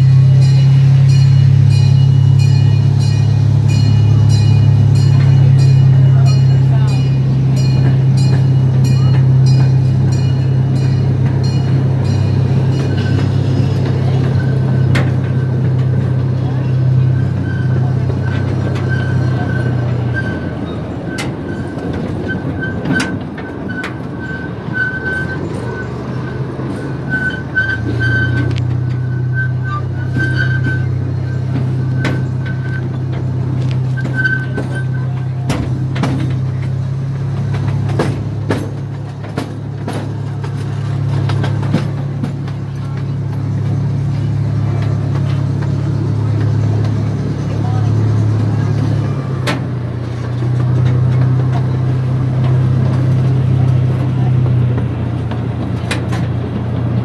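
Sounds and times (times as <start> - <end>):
wheels clacking on track: 0.0 - 57.0
high wavering squeal: 16.5 - 35.2.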